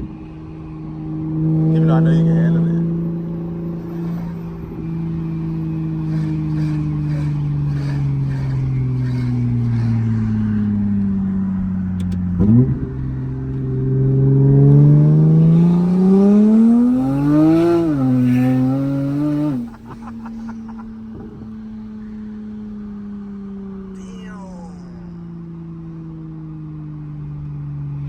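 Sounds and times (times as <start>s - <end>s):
car engine accelerating: 0.0s - 24.0s
exhaust crackles: 3.8s - 22.9s.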